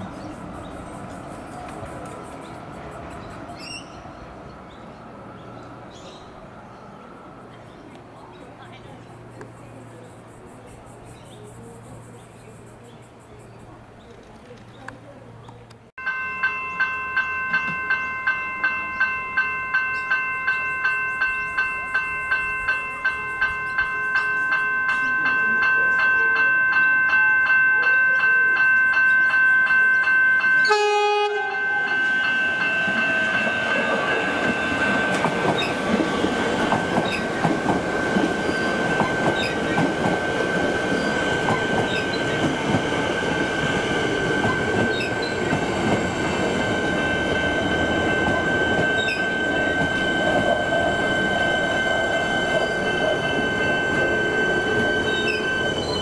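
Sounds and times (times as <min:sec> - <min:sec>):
train horn blast: 0:30.6 - 0:34.6.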